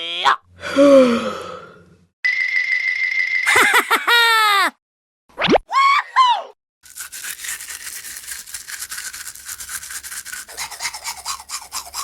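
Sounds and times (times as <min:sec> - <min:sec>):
scratchy scrubbing strokes: 0:06.8 - 0:12.0.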